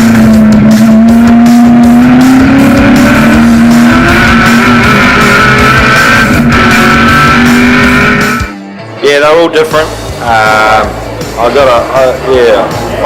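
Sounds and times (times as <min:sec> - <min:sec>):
race car engine revving high: 0:00.0 - 0:08.6
music playing: 0:00.0 - 0:13.0.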